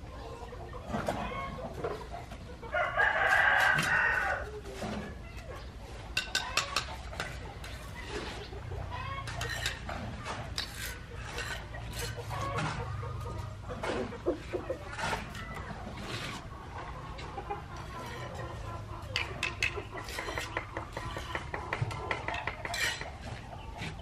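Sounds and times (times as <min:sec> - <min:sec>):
rooster crowing: 0:02.7 - 0:04.4.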